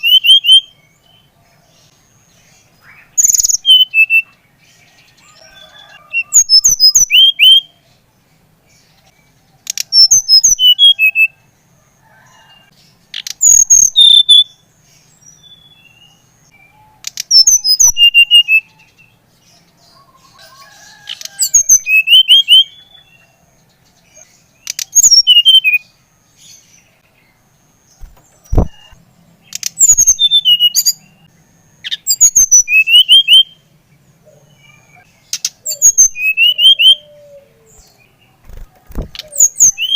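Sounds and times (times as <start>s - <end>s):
bird whistling song: 0.0s - 1.3s, 2.8s - 4.4s, 5.2s - 7.8s, 9.7s - 11.4s, 13.1s - 14.6s, 15.3s - 19.0s, 21.2s - 23.3s, 24.6s - 25.9s, 28.0s - 33.6s, 34.4s - 39.9s
sharp knock: 28.1s - 28.9s.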